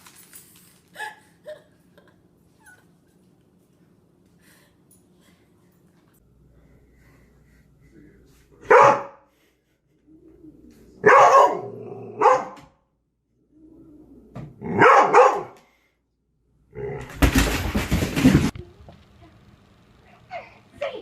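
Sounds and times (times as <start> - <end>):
dog barking: 8.6 - 9.3, 11.0 - 12.6, 14.7 - 15.6.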